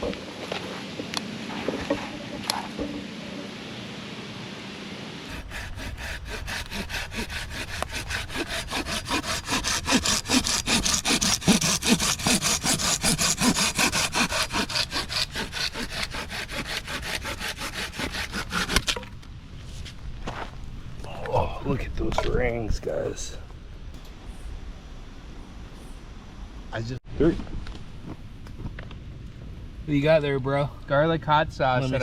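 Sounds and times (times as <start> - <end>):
handsaw cutting through log: 5.3 - 19.0.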